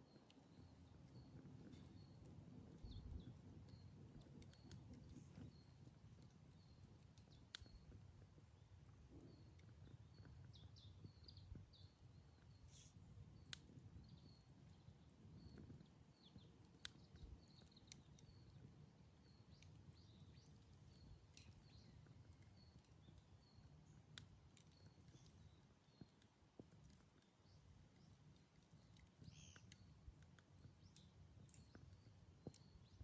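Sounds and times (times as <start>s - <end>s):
campfire crackling and popping: 0.0s - 33.0s
small birds chirping: 0.0s - 33.0s.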